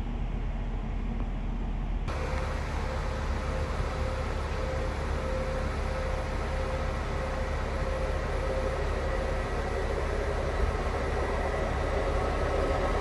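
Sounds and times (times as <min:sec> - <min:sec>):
mid-pitched hum: 0:00.0 - 0:13.0
train rumble and hiss: 0:00.0 - 0:13.0.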